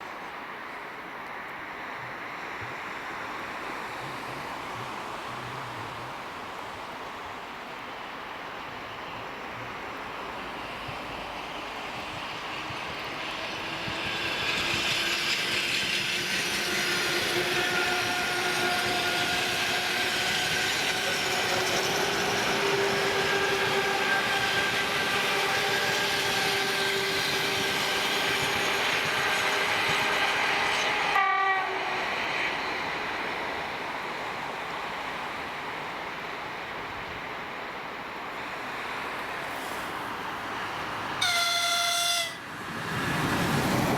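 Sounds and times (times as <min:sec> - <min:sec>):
train wheels rumbling and clattering: 0:10.1 - 0:35.8.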